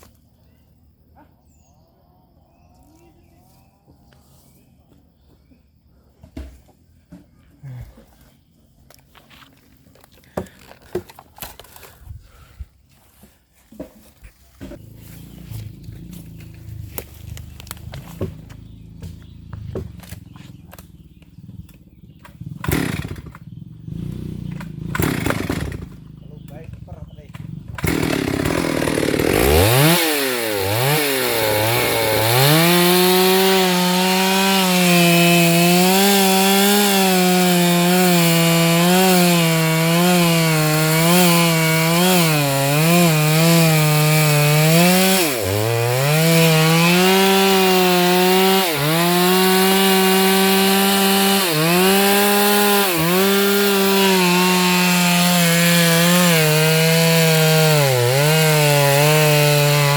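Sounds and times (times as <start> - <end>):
chainsaw cutting through log: 14.6 - 26.6, 27.4 - 59.9.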